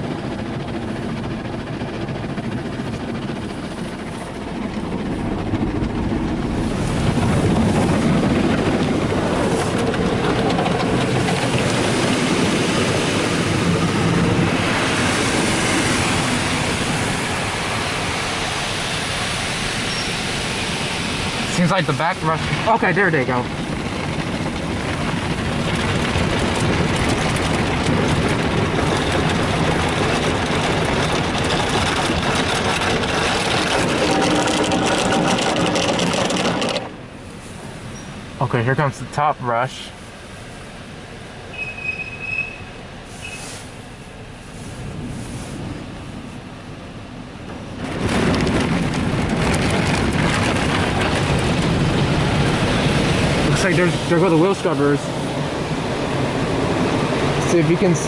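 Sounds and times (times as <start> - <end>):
car wash rumble: 0.0 - 58.0
water spray rushing: 11.1 - 23.4, 43.1 - 43.8
car wash brushes scrubbing: 29.7 - 37.6
water spray: 43.1 - 43.8.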